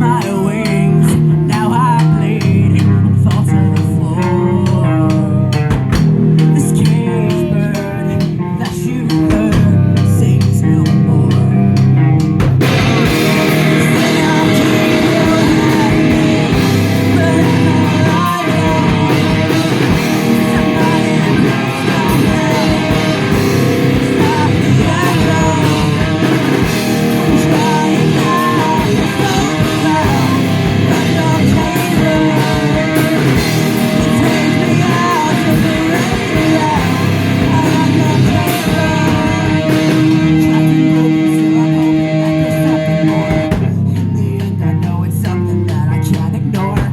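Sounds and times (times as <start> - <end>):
metal band playing: 0.0 - 46.9
person singing: 0.0 - 46.9.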